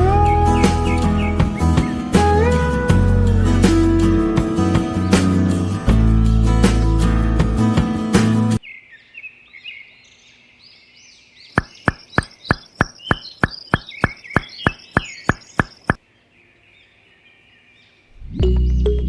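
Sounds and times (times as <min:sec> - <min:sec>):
birds chirping: 0:00.0 - 0:05.8, 0:08.6 - 0:19.0
sharp evenly spaced knocks: 0:11.5 - 0:16.0.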